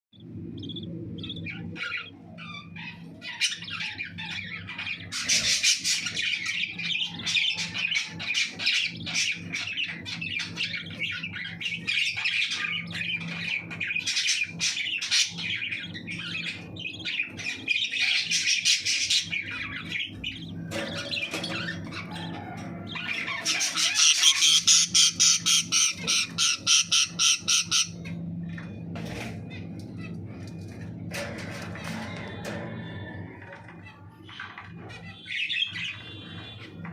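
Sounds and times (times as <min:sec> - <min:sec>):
steady low hum: 0:00.1 - 0:36.9
chick squawking: 0:21.7 - 0:27.9.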